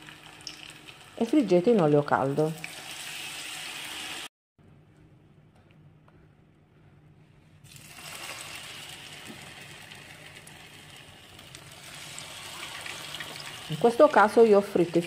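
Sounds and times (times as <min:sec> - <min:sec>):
food frying in hot oil: 0:00.0 - 0:01.5, 0:07.7 - 0:15.0
light oil crackles: 0:07.7 - 0:14.0.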